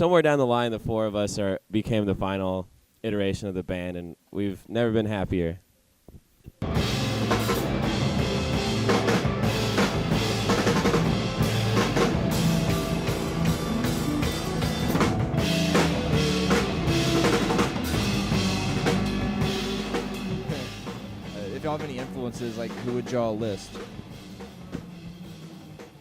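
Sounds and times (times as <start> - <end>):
band music: 6.6 - 26.0.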